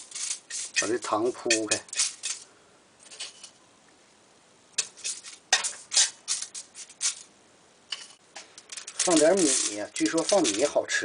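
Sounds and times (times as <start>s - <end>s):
spoon scraping and tapping wok: 0.0s - 2.4s, 4.8s - 7.2s.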